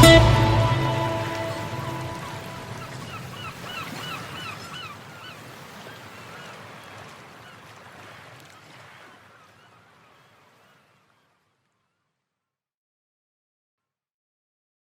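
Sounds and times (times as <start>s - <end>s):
birds calling in quick cries: 2.0s - 6.7s.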